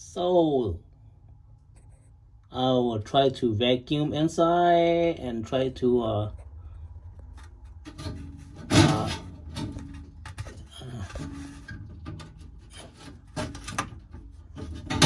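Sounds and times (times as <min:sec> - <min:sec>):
rubbing and scraping of metal parts: 0:07.3 - 0:15.0.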